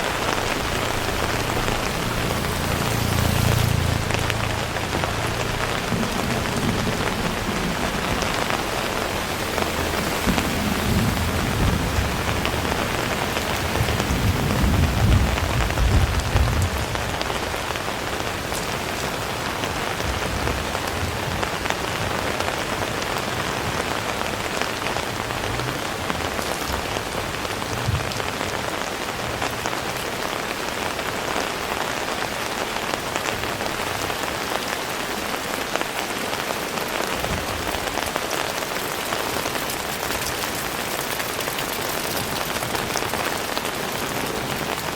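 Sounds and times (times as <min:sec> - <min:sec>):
low rumble: 0:00.0 - 0:16.8
heavy rain falling: 0:00.0 - 0:44.9.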